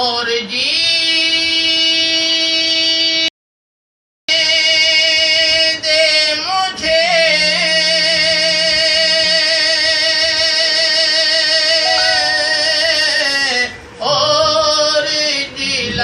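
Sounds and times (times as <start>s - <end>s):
person singing sustained note: 6.8s - 13.6s.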